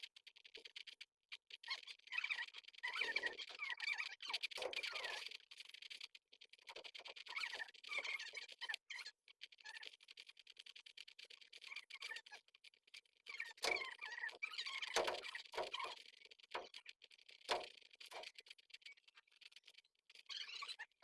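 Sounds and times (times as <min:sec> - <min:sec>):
scratching and clicking in nest: 0:00.0 - 0:21.0
baby pigeons squeaking: 0:01.6 - 0:06.0, 0:06.7 - 0:10.0, 0:11.2 - 0:12.5, 0:13.2 - 0:21.0.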